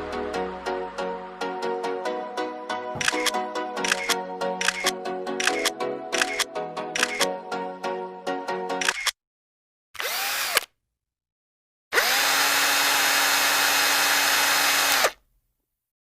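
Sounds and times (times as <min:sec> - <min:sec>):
background music: 0:00.0 - 0:09.0
electric motor whirring: 0:10.0 - 0:10.7, 0:12.0 - 0:15.2.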